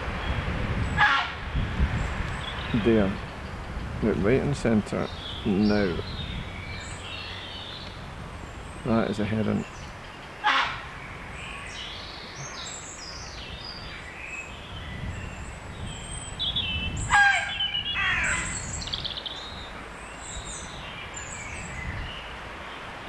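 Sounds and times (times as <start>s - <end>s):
songbirds chirping and trilling: 0.0s - 23.0s
harsh raven call: 10.4s - 10.9s, 17.1s - 18.6s.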